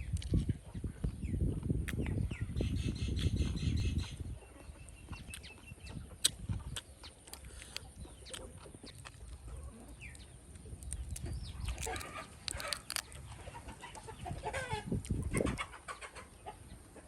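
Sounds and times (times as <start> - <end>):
chickens clucking: 0.3 - 17.0
sharp clicks: 10.6 - 13.2.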